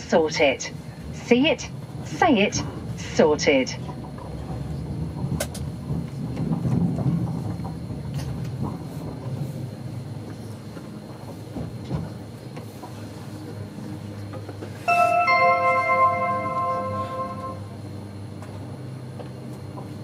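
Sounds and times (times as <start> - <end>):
train rumble: 0.0 - 20.0
two-note electronic chime: 14.9 - 17.8.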